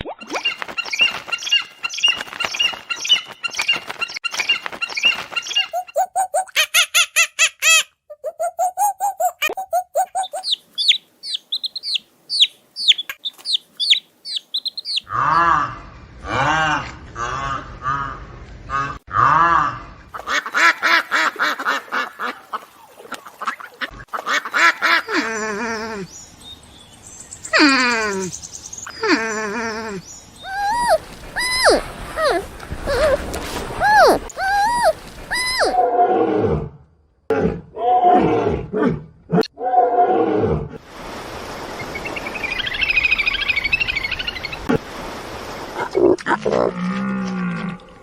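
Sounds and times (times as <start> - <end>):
ducks quacking: 20.2 - 26.0
animal crying: 29.0 - 35.9.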